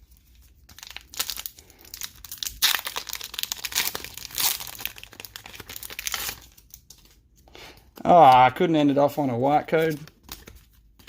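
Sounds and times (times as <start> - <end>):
plastic wrapper crinkling and tearing: 0.0 - 7.4.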